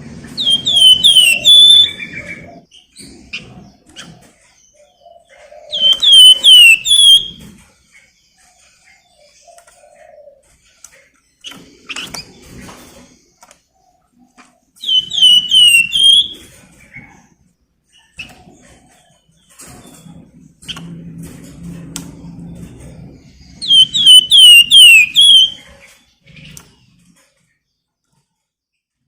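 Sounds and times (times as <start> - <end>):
songbird shrill chirps: 0.4 - 2.1, 5.8 - 7.4, 23.6 - 25.6.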